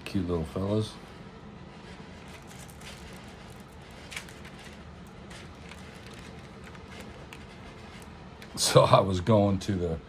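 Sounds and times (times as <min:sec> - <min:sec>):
low background hum: 0:00.0 - 0:10.0
album pages rustling: 0:02.2 - 0:08.6.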